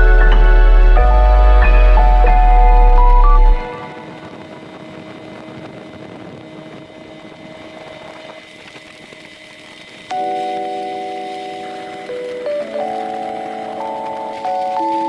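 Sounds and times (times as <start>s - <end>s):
music: 0.0s - 4.5s, 10.1s - 15.0s
speedboat engine running: 0.0s - 15.0s
wind and water hiss: 3.7s - 15.0s.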